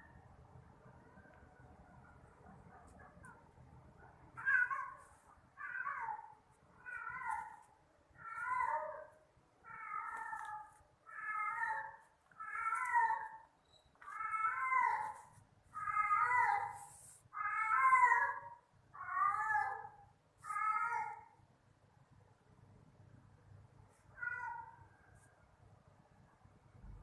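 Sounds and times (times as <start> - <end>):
cat meowing: 4.4 - 21.3, 24.1 - 24.8.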